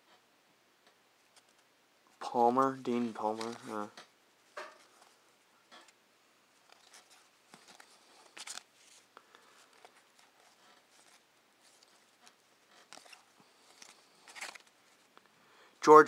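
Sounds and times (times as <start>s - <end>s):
trading cards rustling: 2.7s - 4.0s, 6.6s - 15.2s.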